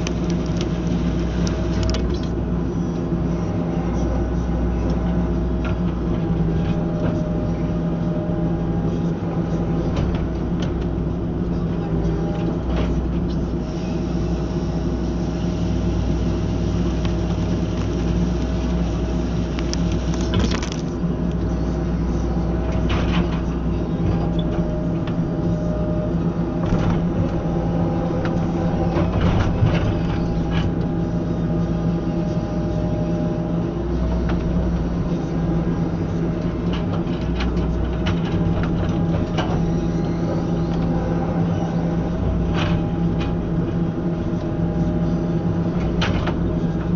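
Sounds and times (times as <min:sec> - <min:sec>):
excavator engine running: 0:00.0 - 0:46.9.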